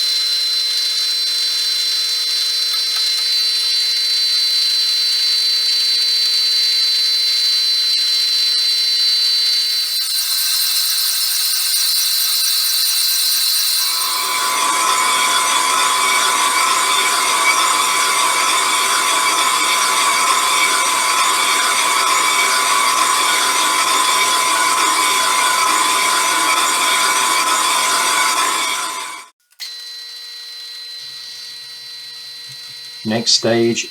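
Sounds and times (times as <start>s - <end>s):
metal lathe high whine: 0.0s - 29.3s
steady ringing tone: 9.6s - 29.2s
rough metal cutting sound: 9.6s - 29.9s.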